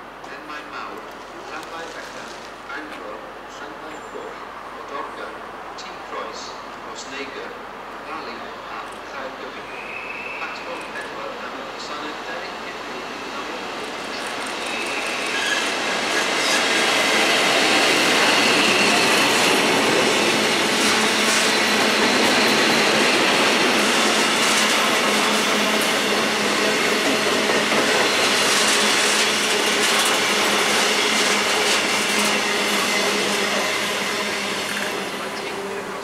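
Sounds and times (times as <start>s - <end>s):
diesel locomotive passing: 9.2s - 36.0s.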